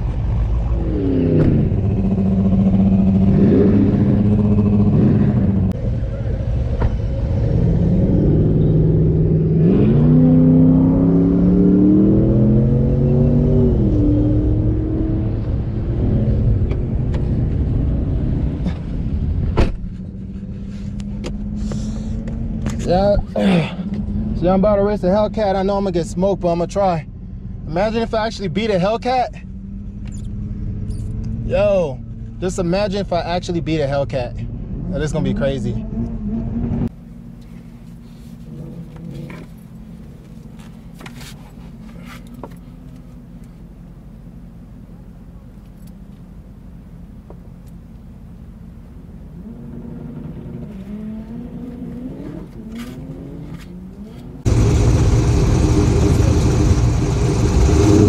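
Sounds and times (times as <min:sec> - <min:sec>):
car engine rumbling: 0:00.0 - 0:58.0
car engine idling: 0:54.4 - 0:58.0.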